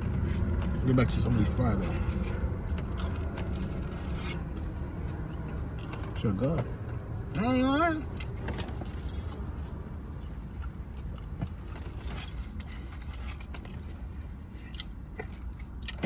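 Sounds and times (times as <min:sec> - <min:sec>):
man chewing fries: 0:00.0 - 0:06.2, 0:09.5 - 0:11.8, 0:12.6 - 0:16.0
low hum in car cabin: 0:00.0 - 0:16.0.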